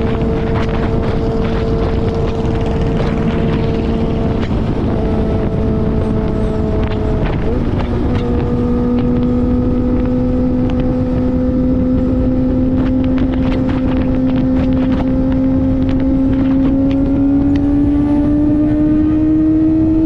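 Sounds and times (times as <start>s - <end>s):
motorcycle engine running: 0.0s - 20.0s
wind noise on microphone: 0.0s - 20.0s.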